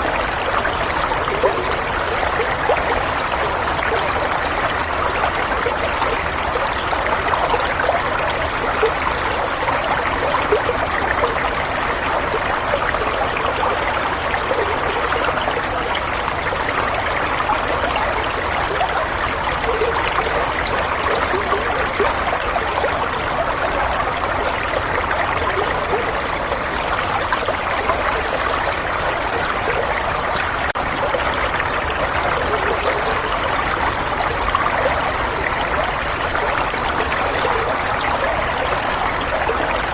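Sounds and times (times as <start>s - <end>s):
water trickling and babbling: 0.0s - 39.9s.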